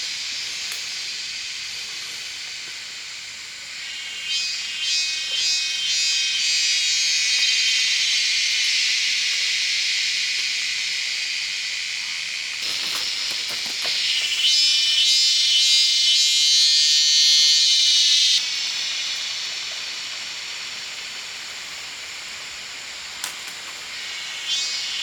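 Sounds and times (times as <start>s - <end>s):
high-pitched insect chorus: 0.0s - 25.0s
rustling: 12.6s - 14.4s.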